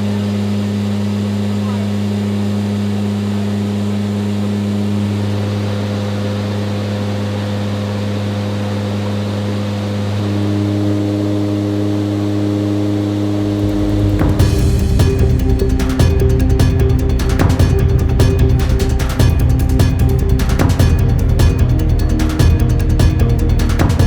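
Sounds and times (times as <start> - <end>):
helicopter rotor drone: 0.1 - 24.0
higher engine tone: 10.2 - 24.0.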